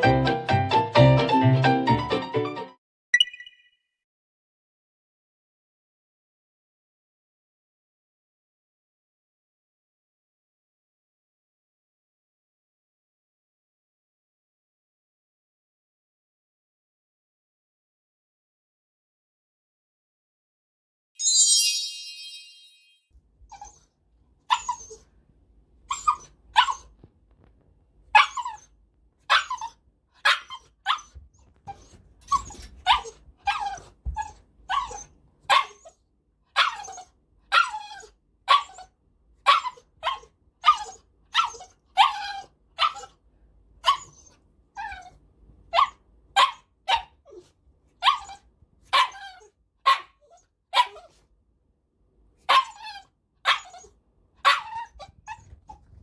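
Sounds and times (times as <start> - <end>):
dog barking sharply: 30.2 - 31.1, 34.9 - 35.8, 49.0 - 49.2, 49.9 - 50.2, 54.4 - 54.9.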